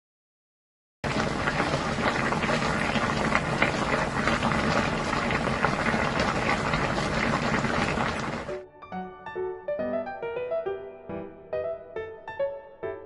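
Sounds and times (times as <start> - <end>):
soup boiling and bubbling: 1.0 - 8.6.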